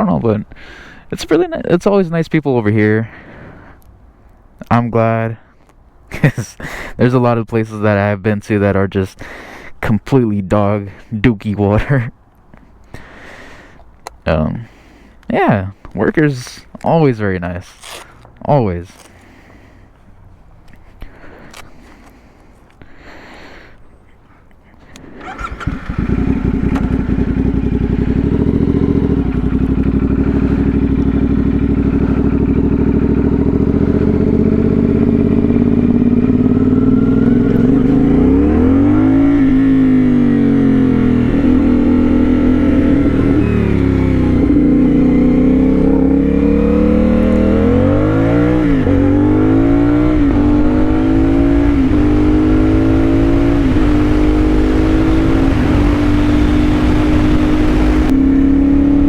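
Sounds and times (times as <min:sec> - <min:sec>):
motorcycle engine starting and idling: 0:25.0 - 0:59.0
motorcycle engine revving and riding off: 0:25.2 - 0:59.0.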